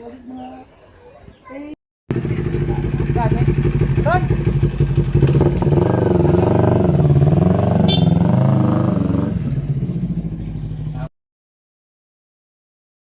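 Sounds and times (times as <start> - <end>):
motorcycle engine revving and idling: 2.1 - 11.1.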